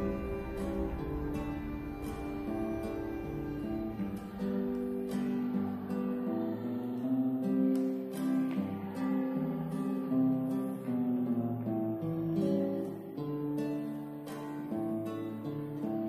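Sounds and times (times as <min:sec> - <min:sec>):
cello with electronic effects: 0:00.0 - 0:07.3.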